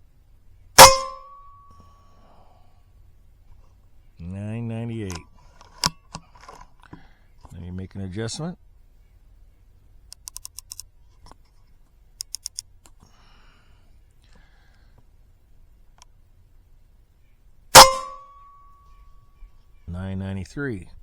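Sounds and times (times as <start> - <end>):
ringing tone: 0.8 - 1.8, 17.8 - 19.0
mechanical clicks: 10.1 - 10.9, 12.2 - 12.7.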